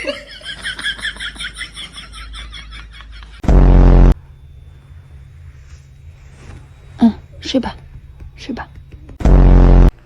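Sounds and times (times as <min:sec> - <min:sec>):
distorted low buzzing: 0:03.4 - 0:10.0.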